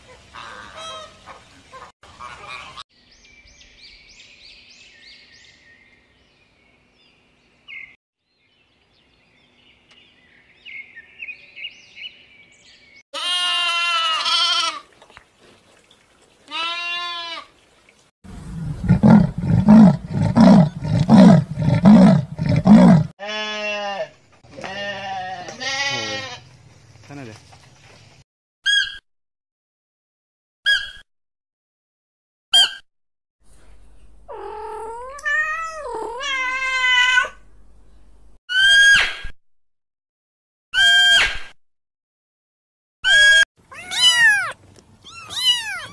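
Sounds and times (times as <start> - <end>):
songbird chirps: 3.0 - 13.0
mouflon bleating: 13.2 - 14.9, 16.5 - 17.5, 19.0 - 26.4
young goat bleating: 13.2 - 14.9, 16.5 - 17.5, 23.2 - 26.4, 43.1 - 45.9
pulsing animal calls: 18.4 - 23.1.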